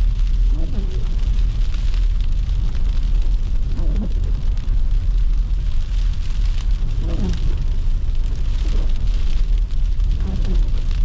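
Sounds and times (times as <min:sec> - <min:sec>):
car driving in snow: 0:00.0 - 0:11.0.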